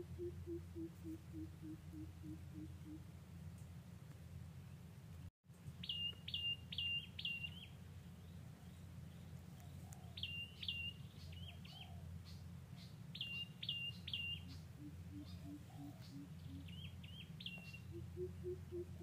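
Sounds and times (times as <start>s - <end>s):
lower repeating bird call: 0.0s - 3.0s, 13.2s - 19.0s
wild birds chirping: 0.0s - 3.1s, 5.8s - 19.0s
steady low hum: 0.0s - 5.3s, 14.4s - 19.0s.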